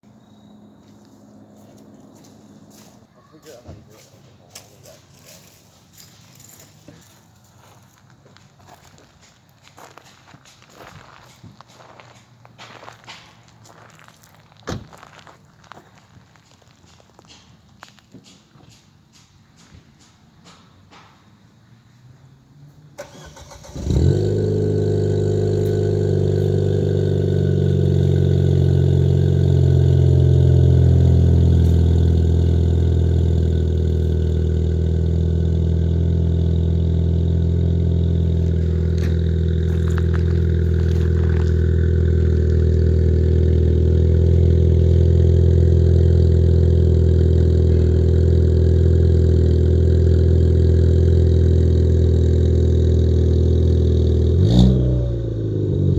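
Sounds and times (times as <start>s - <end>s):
car engine starting and idling: 22.4s - 55.9s.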